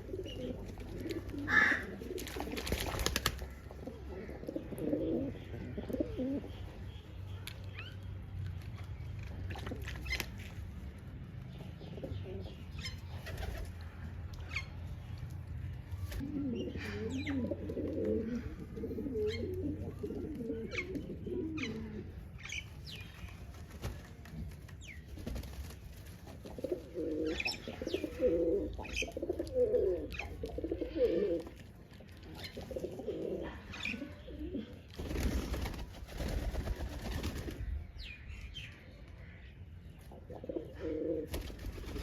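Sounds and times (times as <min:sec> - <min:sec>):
pigeons cooing: 0:00.0 - 0:06.6, 0:16.2 - 0:22.3, 0:26.4 - 0:31.6, 0:32.3 - 0:37.6, 0:40.2 - 0:42.0.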